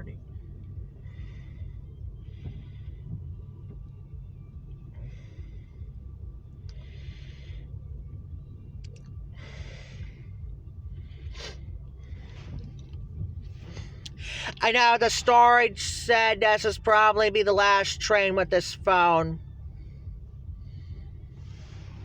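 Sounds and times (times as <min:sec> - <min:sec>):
steady low rumble: 0:00.0 - 0:22.0
person breathing: 0:06.6 - 0:08.0, 0:09.3 - 0:12.6, 0:13.5 - 0:14.6, 0:19.7 - 0:22.0.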